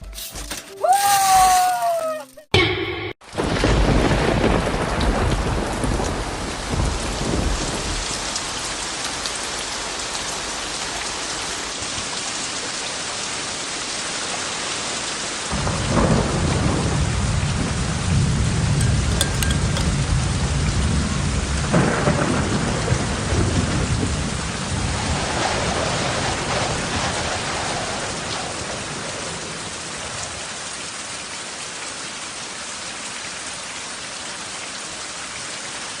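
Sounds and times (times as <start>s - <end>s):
thunder rumbling and cracking: 3.2s - 8.6s, 15.5s - 19.1s, 19.9s - 29.9s
heavy rain: 3.2s - 36.0s.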